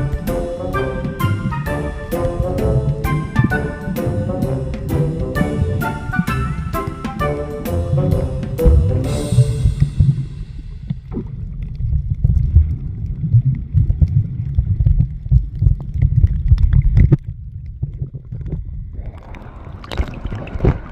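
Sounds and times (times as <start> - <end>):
music: 0.0 - 10.8
underwater churning rumble: 0.0 - 20.9
small underwater clicks: 10.9 - 20.9.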